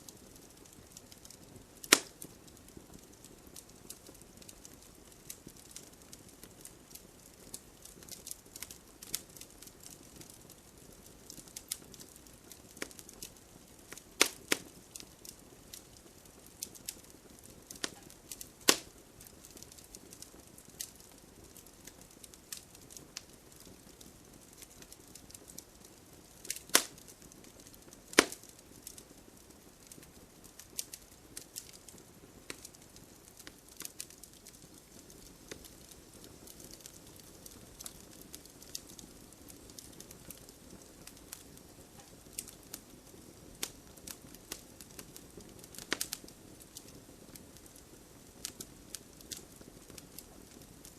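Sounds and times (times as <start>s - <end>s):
wood fire crackling: 0.0s - 50.9s.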